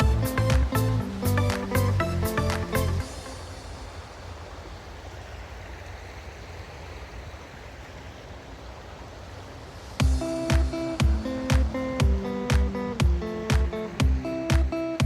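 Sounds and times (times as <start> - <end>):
music with strong beat: 0.0 - 3.2, 10.0 - 15.0
steady rushing outdoor noise: 0.0 - 15.0.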